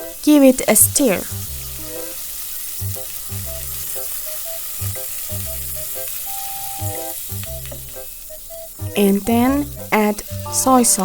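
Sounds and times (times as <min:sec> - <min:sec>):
garlic sizzling in oil: 0:00.0 - 0:11.0
soft music with low beat: 0:02.8 - 0:11.0.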